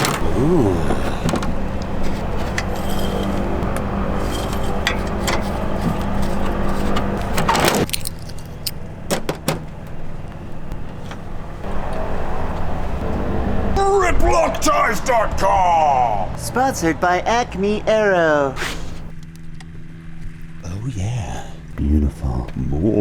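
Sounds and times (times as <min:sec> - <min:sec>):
motor humming: 0:00.0 - 0:13.8.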